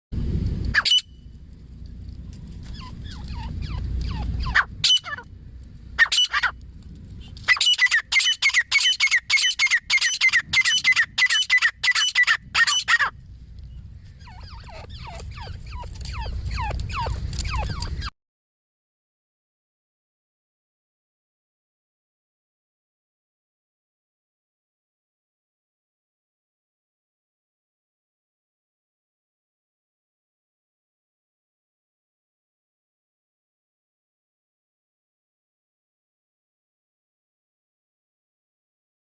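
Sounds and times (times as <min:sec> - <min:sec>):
francolins calling: 0:00.8 - 0:01.2, 0:02.6 - 0:05.3, 0:06.0 - 0:06.6, 0:07.4 - 0:18.1
loud high bird calls: 0:00.8 - 0:01.2, 0:02.7 - 0:05.3, 0:06.0 - 0:06.6, 0:07.4 - 0:13.2, 0:14.0 - 0:18.1.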